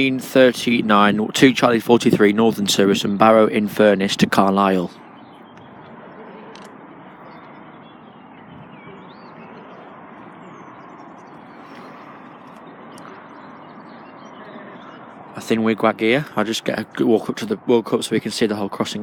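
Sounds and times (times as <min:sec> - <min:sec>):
faint bird chirps: 0:07.2 - 0:15.4.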